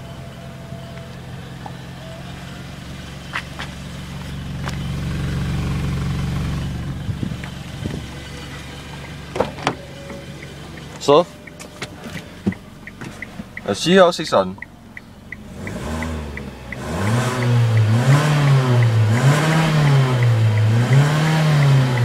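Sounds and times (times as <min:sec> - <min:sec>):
car engine idling: 0:00.0 - 0:22.0
sharp clicks: 0:10.1 - 0:22.0.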